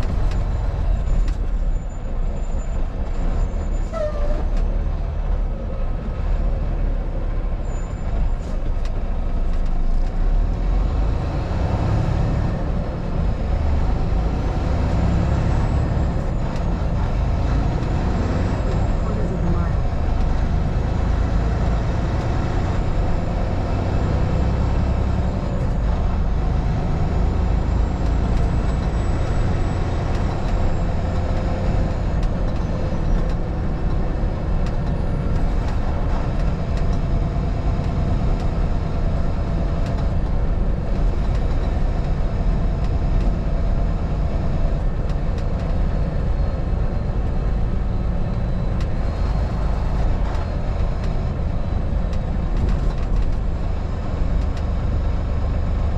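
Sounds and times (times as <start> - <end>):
vehicle engine and tyre rumble: 0.0 - 55.9.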